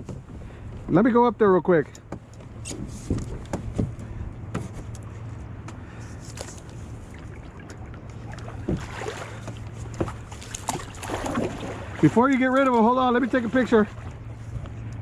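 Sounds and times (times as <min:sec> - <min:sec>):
kayak low rumble: 0:00.0 - 0:15.0
knocks and clicks from hull: 0:01.8 - 0:05.8, 0:07.1 - 0:11.6.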